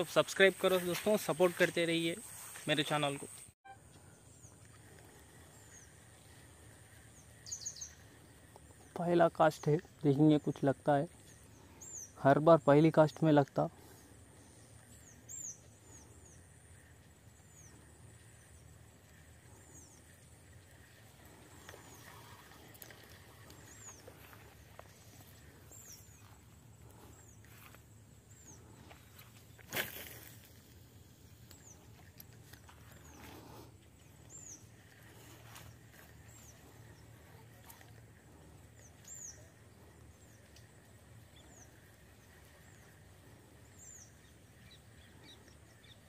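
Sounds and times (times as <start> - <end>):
high insect drone: 0.0 - 46.0
bird chirping: 5.6 - 9.0
faint clicks: 40.0 - 41.0.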